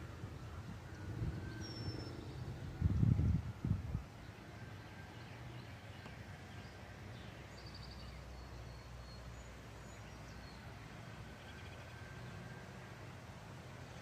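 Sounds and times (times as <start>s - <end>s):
steady low rumble: 0.0s - 4.4s
faint birds chirping: 3.9s - 13.2s.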